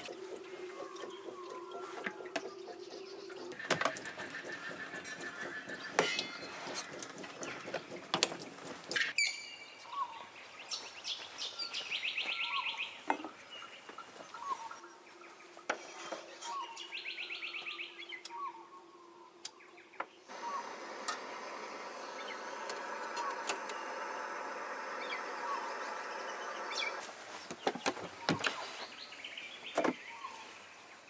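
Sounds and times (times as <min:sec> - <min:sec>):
birds trilling: 0:00.0 - 0:10.4, 0:16.3 - 0:27.1.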